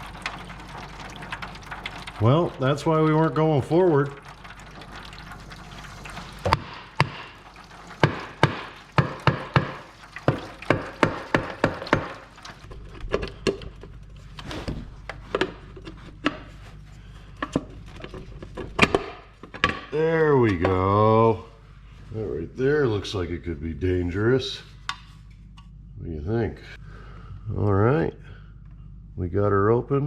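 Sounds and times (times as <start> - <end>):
tool knocking on cover: 8.0 - 12.2.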